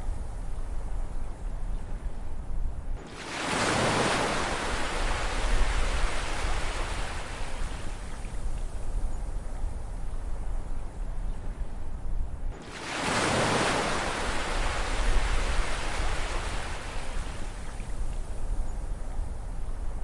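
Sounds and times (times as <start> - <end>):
low rumble of surf: 0.0 - 20.0
ocean wave surging: 12.6 - 17.2.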